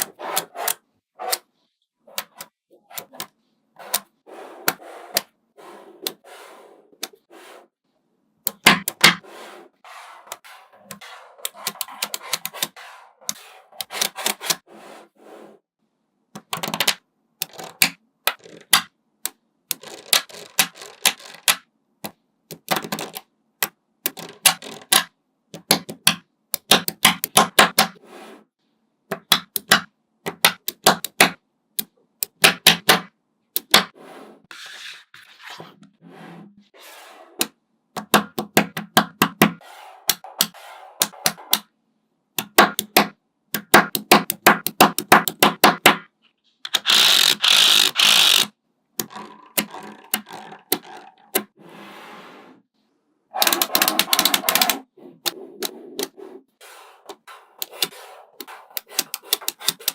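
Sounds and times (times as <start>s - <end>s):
magnetic balls clicking: 46.6s - 51.6s.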